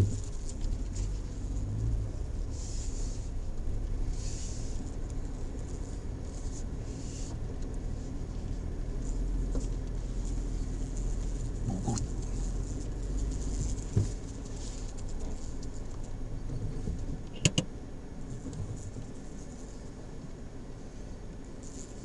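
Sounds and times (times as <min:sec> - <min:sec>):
engine and tyres rumbling: 0:00.0 - 0:22.0
short hissing swishes: 0:02.4 - 0:03.4, 0:04.0 - 0:05.0.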